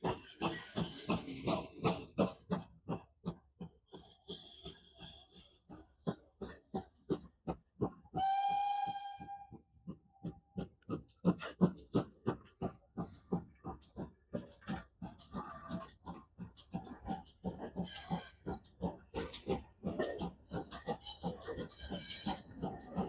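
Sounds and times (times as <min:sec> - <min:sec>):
steam locomotive exhaust beating: 0:00.0 - 0:23.0
steam whistle blast: 0:08.2 - 0:09.5.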